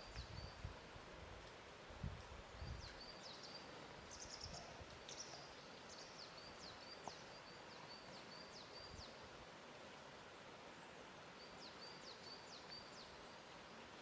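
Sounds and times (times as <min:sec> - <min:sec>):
faint outdoor hiss: 0:00.0 - 0:14.0
small bird singing: 0:02.5 - 0:09.2, 0:11.4 - 0:13.4.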